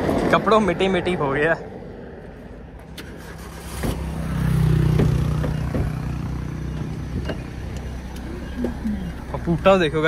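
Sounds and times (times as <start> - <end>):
car engine idling: 2.6 - 10.0.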